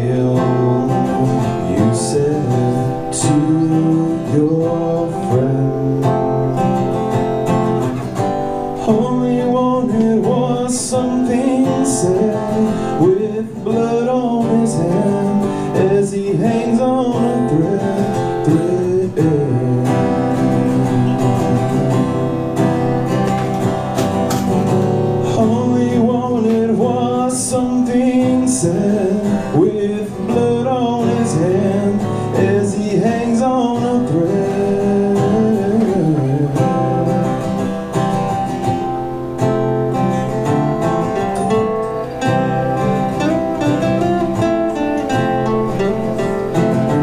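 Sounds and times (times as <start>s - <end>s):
person singing: 0.0s - 6.8s, 8.8s - 22.4s, 25.2s - 37.6s
acoustic guitar strumming: 0.0s - 47.0s
live rock band playing: 5.4s - 16.0s, 17.0s - 47.0s.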